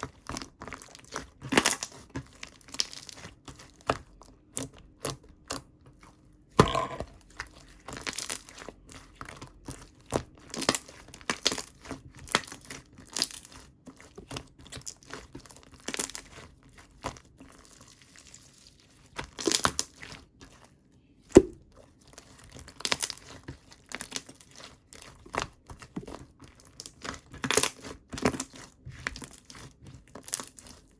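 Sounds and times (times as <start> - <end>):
sharp loud slime pop: 21.4 - 21.6.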